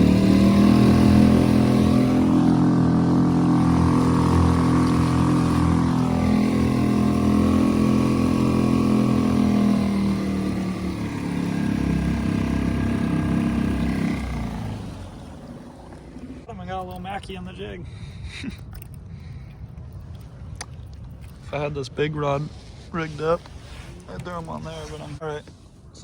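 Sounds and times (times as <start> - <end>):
outboard motor running: 0.0 - 17.2.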